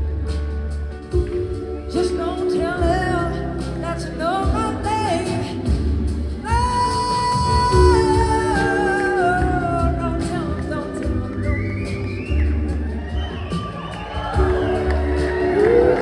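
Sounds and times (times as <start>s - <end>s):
live band playing: 0.0s - 16.0s.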